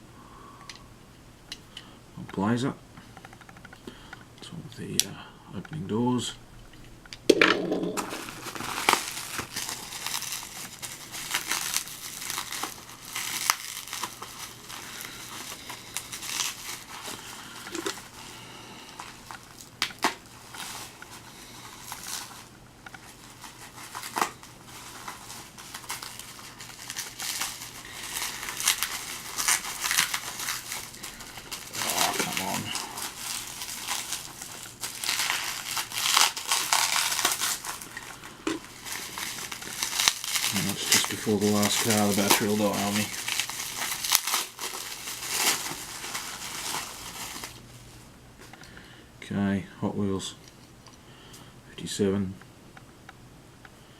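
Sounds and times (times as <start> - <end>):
plastic packaging crinkling: 7.6 - 48.5.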